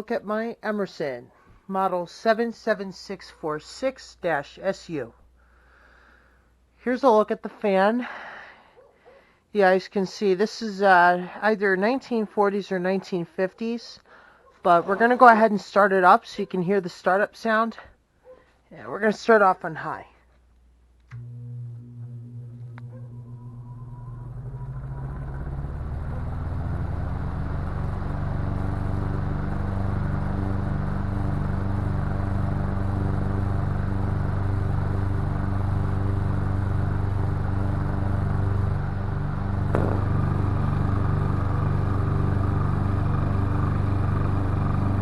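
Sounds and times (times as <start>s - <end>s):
electric fan running: 21.1s - 45.0s.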